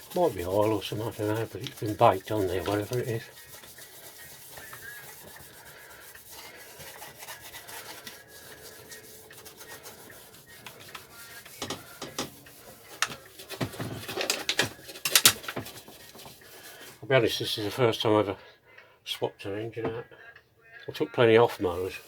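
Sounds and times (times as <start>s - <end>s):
scraping on lawnmower deck: 10.6s - 15.9s.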